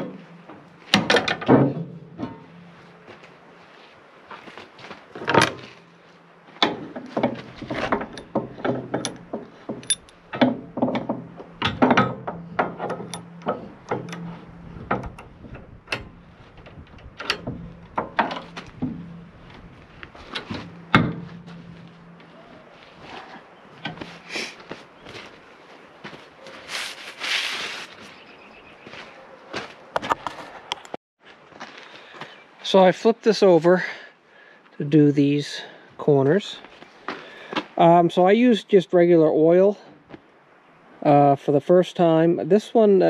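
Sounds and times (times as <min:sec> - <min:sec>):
metal clanks and knocks: 0:00.0 - 0:03.2, 0:05.2 - 0:23.2, 0:23.8 - 0:24.3
low steady hum: 0:05.2 - 0:24.3.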